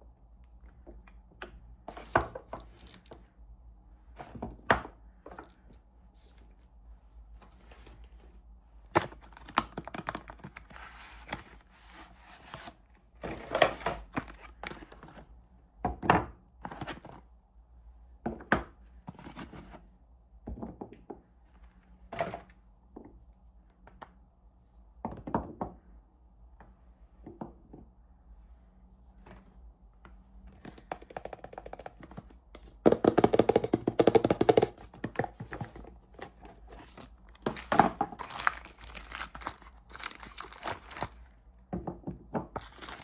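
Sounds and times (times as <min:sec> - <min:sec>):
wrappers tearing and crinkling: 0:36.5 - 0:41.3, 0:42.6 - 0:43.0.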